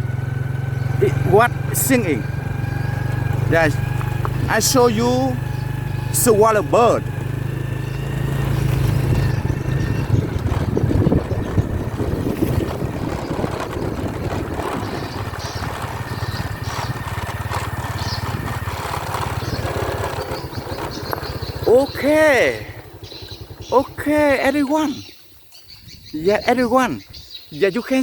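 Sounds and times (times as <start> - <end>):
motorbike engine running: 0.0 - 25.2
swiftlets twittering: 0.8 - 12.8.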